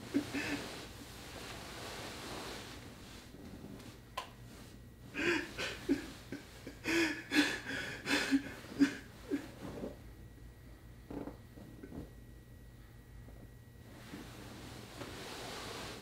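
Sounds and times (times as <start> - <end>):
man laughing breathily: 0.0 - 0.8, 5.1 - 9.6.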